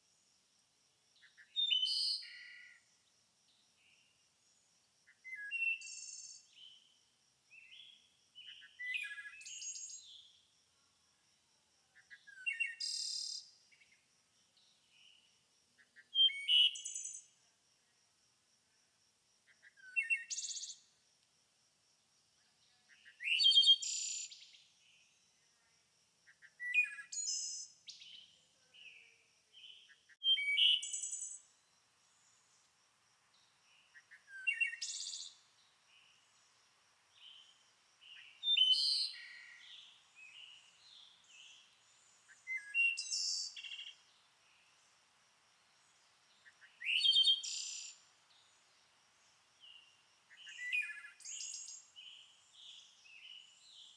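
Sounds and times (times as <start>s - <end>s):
songbird singing: 1.2s - 10.5s, 11.8s - 17.5s, 19.5s - 21.0s, 22.4s - 25.7s, 26.3s - 53.9s
soft bird chirps: 26.3s - 32.6s, 33.3s - 36.5s, 37.1s - 44.8s, 45.9s - 48.8s, 49.4s - 53.9s.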